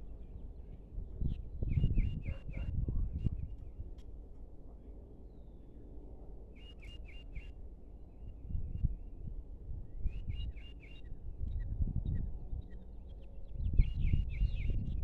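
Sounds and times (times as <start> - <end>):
wind rumble on microphone: 0.0 - 4.2, 8.3 - 15.0.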